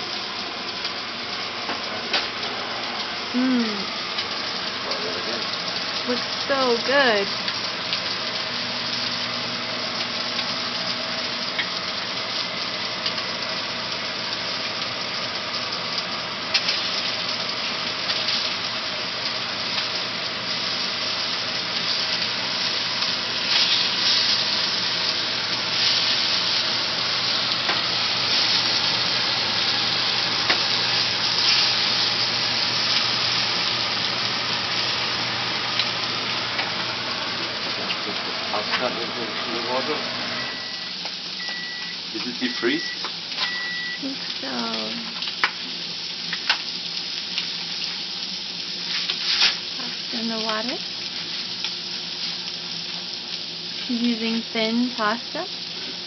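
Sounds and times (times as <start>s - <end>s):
scallops sizzling in a frying pan: 0.0s - 56.0s
faint steady hum: 2.4s - 48.7s
spatula turning food: 23.4s - 32.2s.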